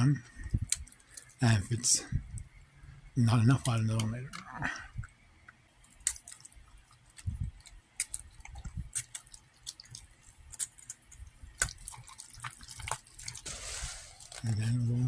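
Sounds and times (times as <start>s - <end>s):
wet squishing of filling: 0.3s - 1.4s, 5.9s - 14.5s.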